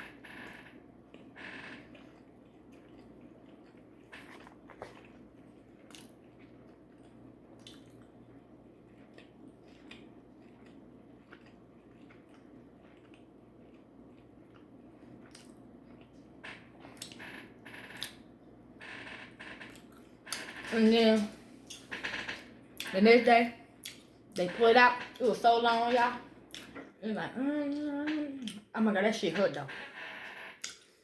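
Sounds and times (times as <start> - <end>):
soft chewing: 1.0 - 17.3, 19.6 - 20.4, 23.7 - 24.5, 25.1 - 28.7.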